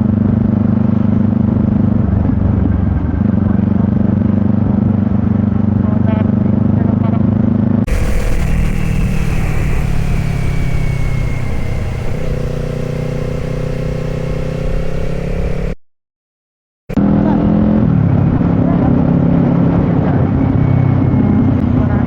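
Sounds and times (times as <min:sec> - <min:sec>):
motorcycle engine running: 0:07.9 - 0:15.8
road noise: 0:07.9 - 0:15.8.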